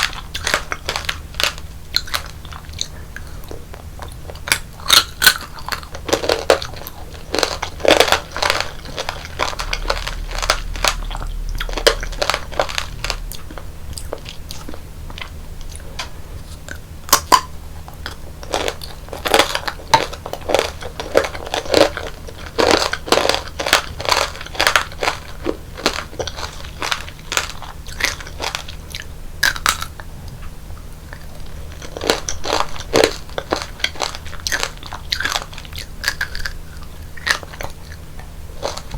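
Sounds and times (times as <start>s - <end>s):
candy shell crunching between teeth: 0.0s - 30.1s, 30.9s - 38.9s
quiet chewing: 0.0s - 38.9s.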